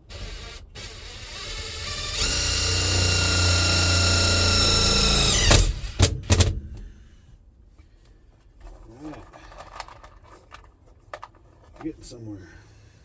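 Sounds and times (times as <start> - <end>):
power drill whining: 0.0 - 6.1.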